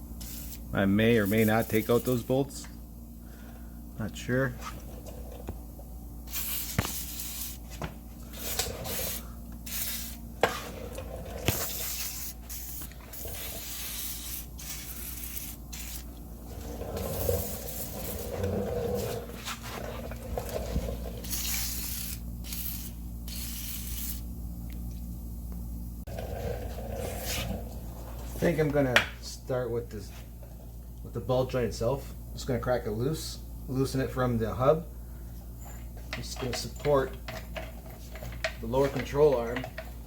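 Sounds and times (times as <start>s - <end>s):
aerosol can spraying: 0.2s - 2.2s, 6.3s - 7.8s, 8.4s - 10.2s, 11.5s - 16.2s, 21.2s - 24.3s.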